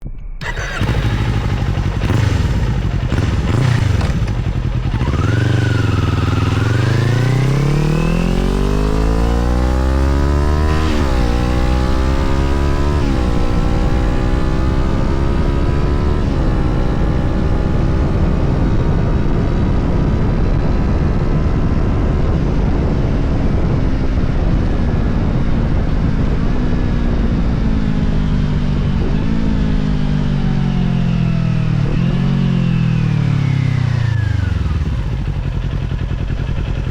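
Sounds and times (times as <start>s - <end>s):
motorcycle engine accelerating: 0.4s - 36.9s.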